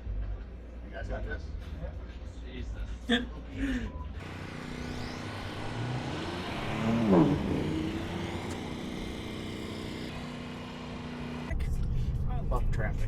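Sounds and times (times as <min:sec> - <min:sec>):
vehicle passing by: 0:04.2 - 0:11.6.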